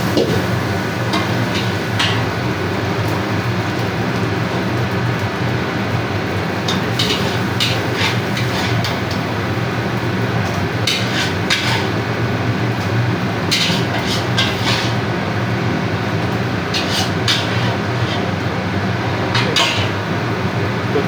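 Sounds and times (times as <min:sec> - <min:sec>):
metal spatula scraping a wok: 0:06.7 - 0:09.1, 0:10.8 - 0:12.0, 0:13.4 - 0:15.1, 0:16.7 - 0:18.4, 0:19.3 - 0:20.0.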